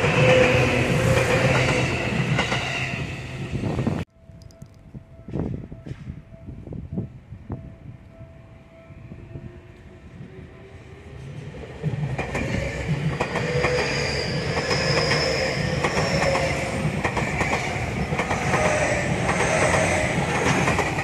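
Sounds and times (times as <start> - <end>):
electric train passing: 0.0 - 21.0
wheels rumbling on rail: 9.0 - 21.0.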